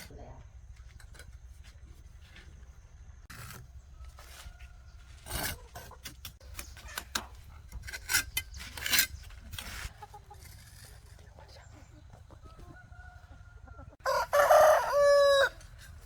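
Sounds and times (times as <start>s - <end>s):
tool scraping rough surface: 0.9s - 11.3s.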